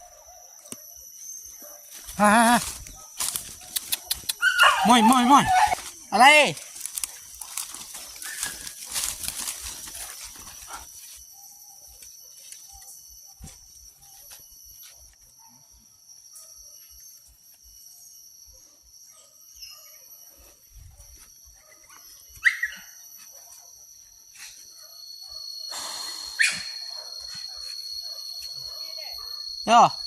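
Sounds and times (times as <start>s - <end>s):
dog barking: 0.0s - 0.8s, 2.9s - 5.8s, 26.4s - 29.5s
high-pitched insect drone: 0.0s - 30.0s.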